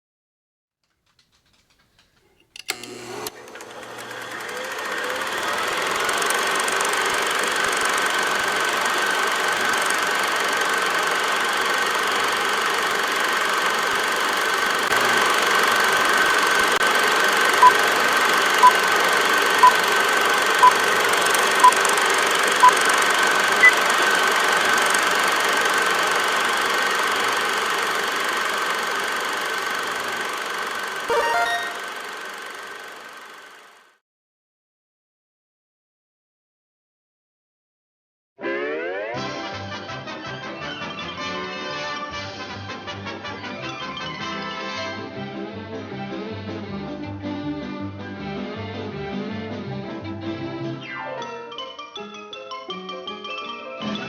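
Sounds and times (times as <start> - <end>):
small machine whirring clatter: 0.8 - 34.0
high whine: 17.5 - 32.5
short beeps: 31.1 - 31.9.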